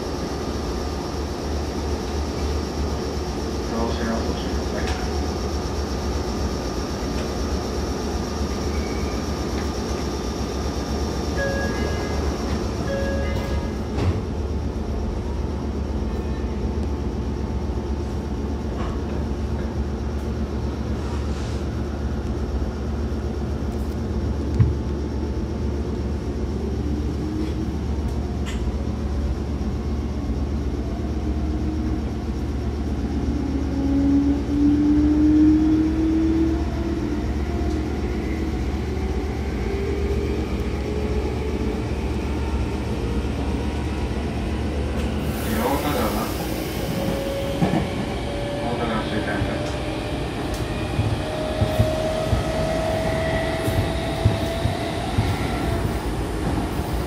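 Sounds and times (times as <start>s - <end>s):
train wheels rumbling on track: 0.0s - 57.0s
train motor whine rising: 33.2s - 57.0s.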